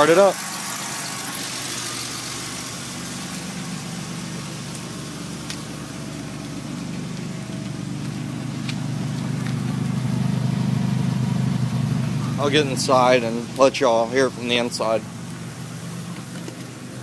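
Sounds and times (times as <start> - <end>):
car engine idling: 0.0 - 17.0
faint engine ticks: 1.5 - 17.0.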